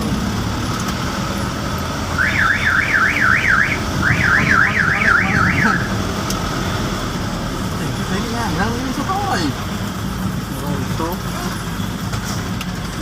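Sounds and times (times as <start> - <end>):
truck engine rumbling: 0.0 - 13.0
electronic siren alarm warbling: 2.2 - 6.1.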